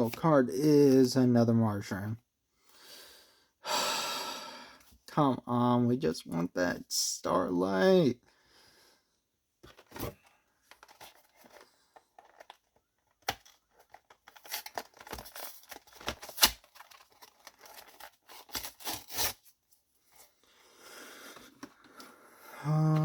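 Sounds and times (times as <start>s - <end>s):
wrapper tearing and crinkling: 13.2s - 19.5s.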